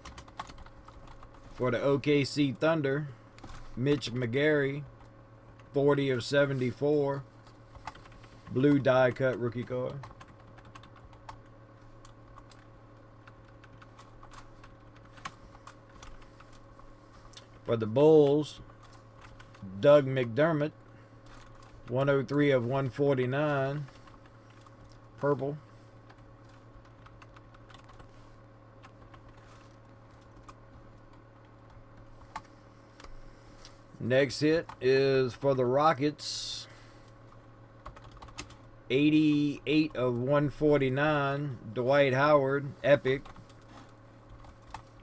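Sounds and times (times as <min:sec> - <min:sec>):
low electrical hum: 0:00.0 - 0:45.0.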